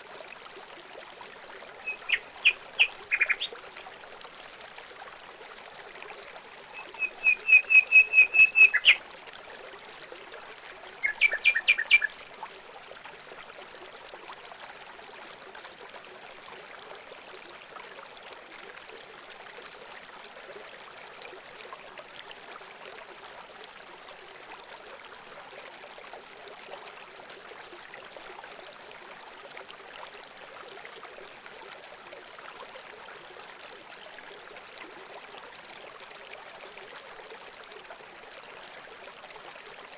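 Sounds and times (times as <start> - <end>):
running water: 0.0 - 39.9
bird calling sharp repeated notes: 1.8 - 3.5, 6.8 - 9.0, 11.0 - 12.1.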